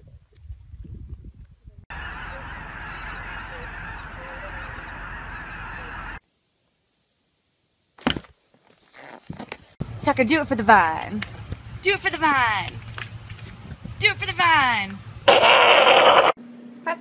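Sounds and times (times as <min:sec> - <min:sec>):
flock of birds calling: 0:01.9 - 0:06.2
low rumbling: 0:09.8 - 0:16.0.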